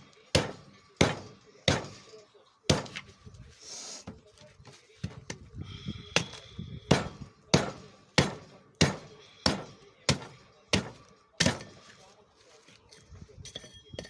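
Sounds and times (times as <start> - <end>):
axe chopping wood: 0.3 - 2.0, 2.7 - 3.1, 6.2 - 11.8.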